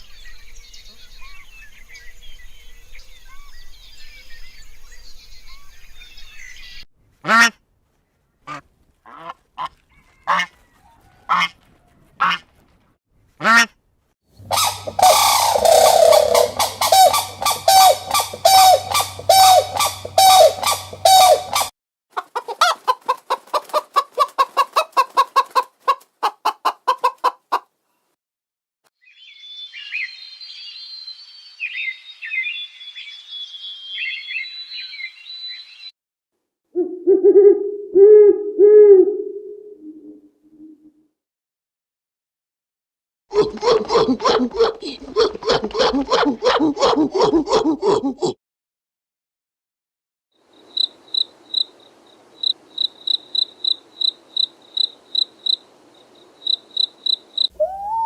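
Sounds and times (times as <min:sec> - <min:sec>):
high bird chirping: 0:14.4 - 0:21.7, 0:56.5 - 0:58.0
rapid pulsed bird calls: 0:14.4 - 0:21.7, 0:52.4 - 0:58.0
sharp bird calls: 0:14.4 - 0:21.7, 0:56.4 - 0:58.0
flock of birds honking and cackling: 0:14.5 - 0:21.7.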